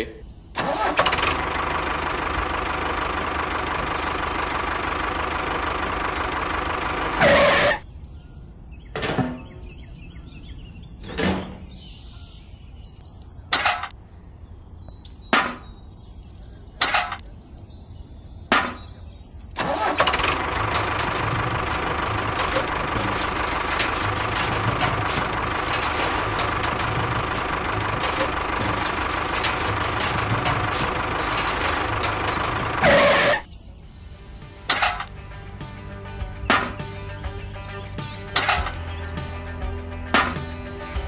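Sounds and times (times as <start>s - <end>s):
tractor engine running: 0.6s - 7.8s, 13.5s - 14.0s, 18.5s - 41.0s.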